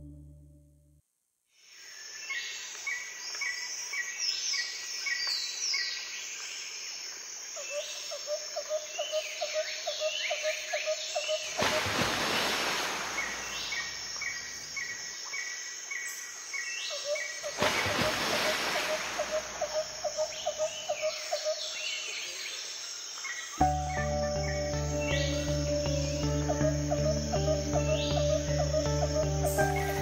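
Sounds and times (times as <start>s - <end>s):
birds chirping and whistling: 23.6s - 30.0s.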